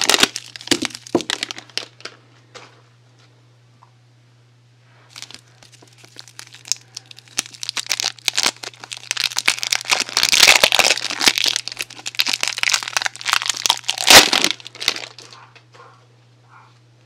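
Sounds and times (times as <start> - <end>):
packaging crinkled and torn: 0.0 - 2.1, 5.1 - 15.4.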